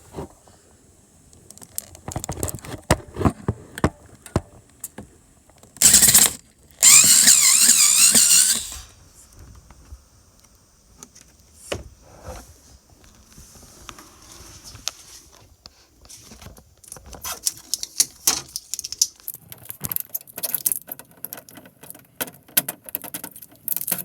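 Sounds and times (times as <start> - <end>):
power drill whining: 5.8 - 8.9.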